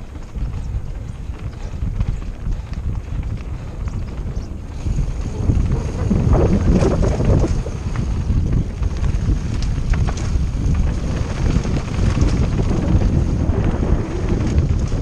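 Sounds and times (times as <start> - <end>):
bike rumble: 0.0 - 15.0
wind buffeting microphone: 0.0 - 15.0.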